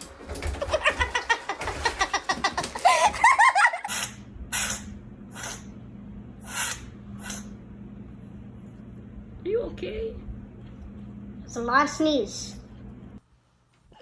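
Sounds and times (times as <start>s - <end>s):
person laughing: 0.6s - 4.1s
steady low hum: 1.8s - 14.0s
short hissing bursts: 3.9s - 5.7s, 6.4s - 7.5s.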